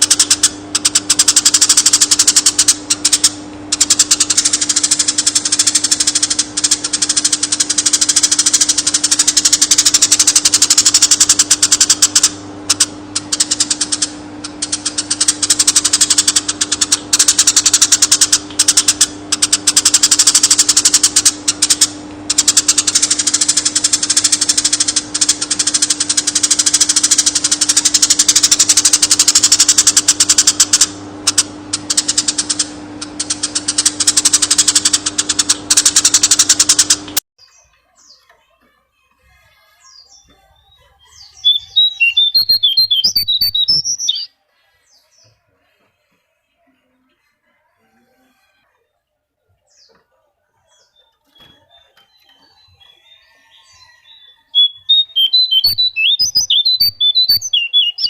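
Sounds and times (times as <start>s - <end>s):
steady low hum: 0.0s - 38.1s
songbird chattering chirps and trills: 0.0s - 38.3s, 39.7s - 45.4s, 49.7s - 58.0s.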